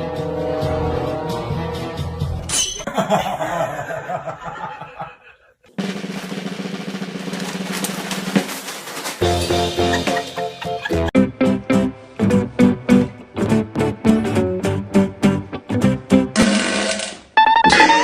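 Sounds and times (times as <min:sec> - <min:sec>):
music with drums: 0:05.8 - 0:11.1
plain pitched tune: 0:17.4 - 0:18.0.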